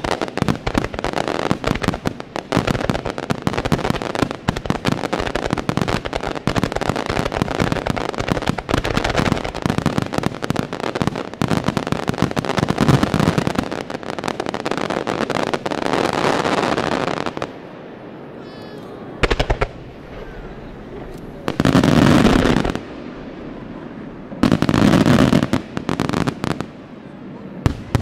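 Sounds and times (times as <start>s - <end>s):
fireworks bangs: 0.0s - 28.0s.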